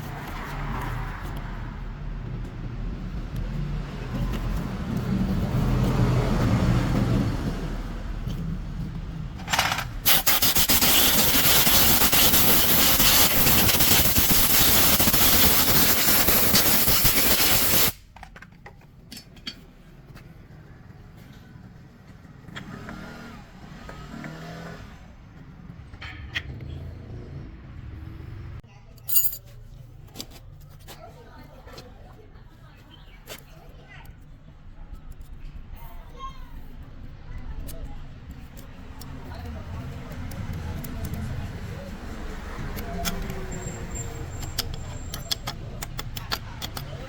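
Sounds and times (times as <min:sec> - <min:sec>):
loud steady hiss: 0:10.1 - 0:18.0.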